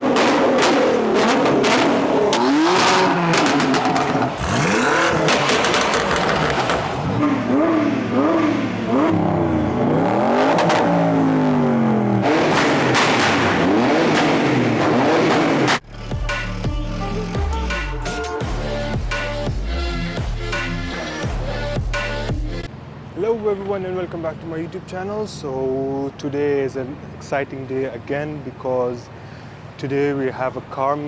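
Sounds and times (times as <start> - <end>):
sharp cracks: 0.0 - 7.3, 12.2 - 15.8
car engines revving hard: 0.0 - 15.8.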